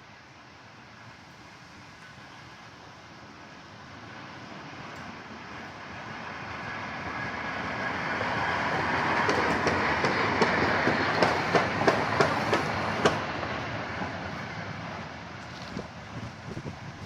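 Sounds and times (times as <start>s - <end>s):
steam locomotive rolling: 0.6s - 17.0s
wheels clicking over rail joints: 8.7s - 14.4s.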